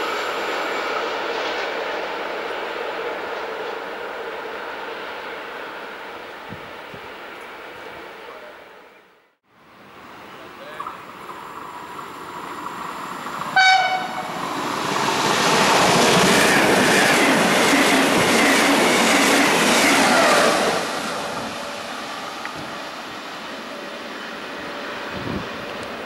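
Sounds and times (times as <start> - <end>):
train passing at speed: 0.0 - 26.0
train horn blast: 13.6 - 14.4.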